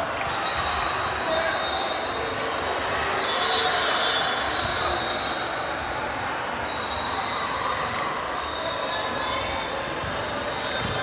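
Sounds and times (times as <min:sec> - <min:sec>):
gym hall noise: 0:00.0 - 0:11.0
shoe squeaks on court: 0:06.6 - 0:11.0.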